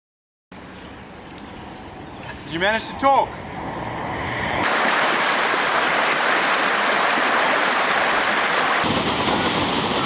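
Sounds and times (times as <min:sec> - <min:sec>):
deep water rumble: 0:04.6 - 0:10.0
river water rushing: 0:04.6 - 0:10.0.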